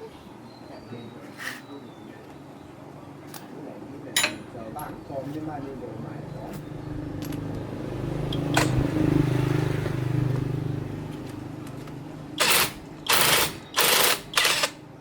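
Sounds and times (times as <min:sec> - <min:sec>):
engine humming: 0:04.4 - 0:15.0.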